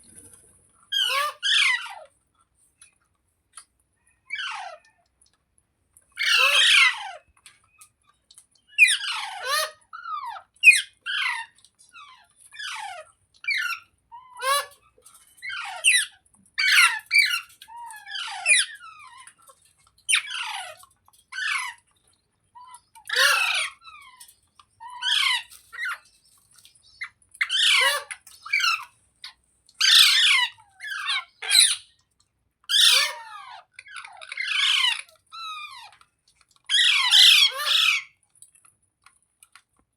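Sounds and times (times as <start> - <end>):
parakeet squawking: 0.9 - 2.0, 6.2 - 7.2, 22.9 - 24.2, 24.8 - 26.1, 27.0 - 28.9, 29.8 - 32.0, 32.7 - 35.9, 36.7 - 38.1.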